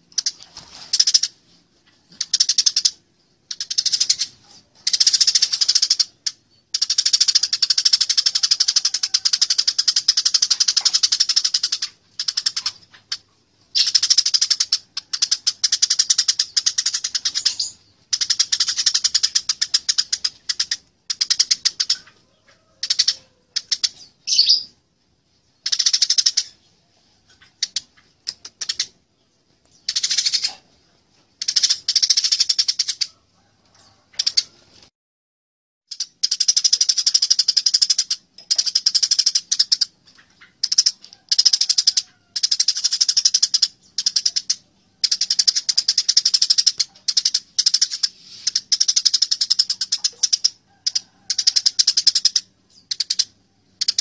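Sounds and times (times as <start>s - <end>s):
sparrows chirping harshly: 13.7s - 22.2s, 22.8s - 24.8s, 35.9s - 54.0s.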